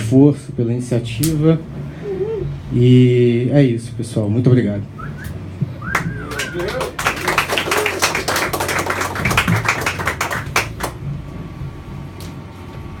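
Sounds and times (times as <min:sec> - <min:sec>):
low steady hum: 0:00.0 - 0:13.0
audience clapping: 0:05.8 - 0:11.0.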